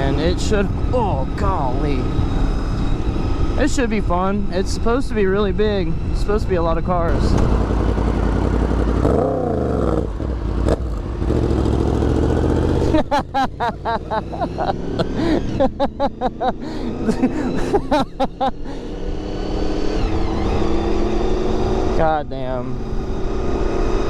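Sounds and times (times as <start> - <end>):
motorcycle engine running: 7.1 - 19.3
rising and falling pitched sounds: 11.3 - 22.0.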